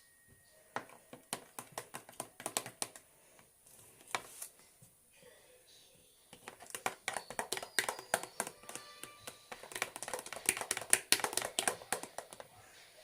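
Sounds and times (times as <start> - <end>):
utensil tapping against cup: 0.8 - 3.0, 6.4 - 12.5
slime being stirred: 0.8 - 3.1, 6.4 - 12.5.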